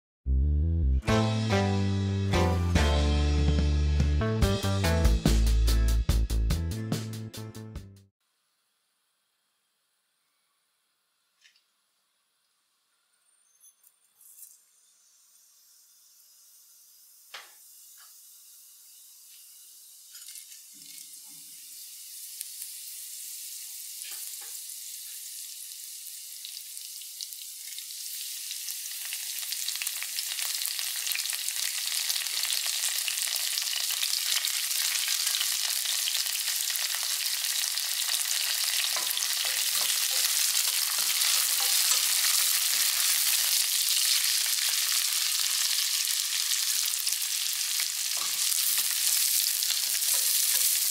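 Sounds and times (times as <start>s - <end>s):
spices sizzling in hot oil: 13.4s - 50.9s.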